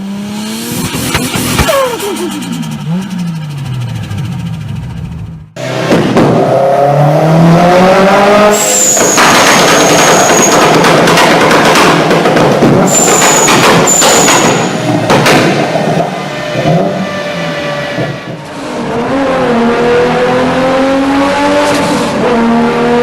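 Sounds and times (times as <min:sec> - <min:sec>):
car engine revving: 0:00.0 - 0:09.0, 0:14.5 - 0:23.0
high whistle: 0:08.6 - 0:10.6, 0:12.9 - 0:14.8
tyre squeal: 0:08.6 - 0:10.6, 0:12.9 - 0:14.8.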